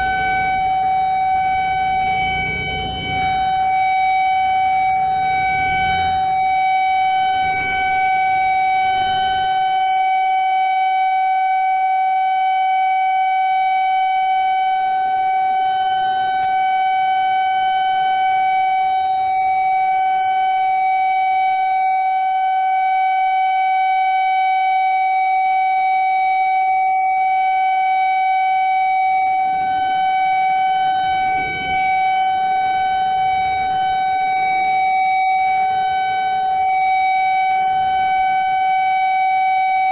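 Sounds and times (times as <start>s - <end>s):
faint low rumble: 0.0s - 9.7s, 30.8s - 35.8s
steady alarm tone: 0.0s - 39.9s.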